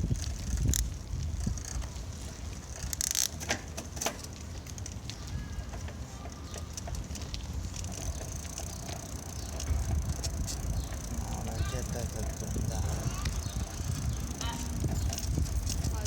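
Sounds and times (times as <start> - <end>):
wind rumble on microphone: 0.0 - 3.0, 9.4 - 16.0
bicycle clicks and rattles: 0.0 - 16.0.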